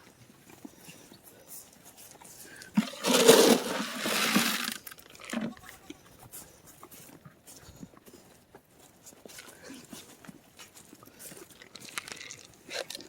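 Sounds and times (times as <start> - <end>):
dry feed pouring and rattling: 2.8 - 5.3.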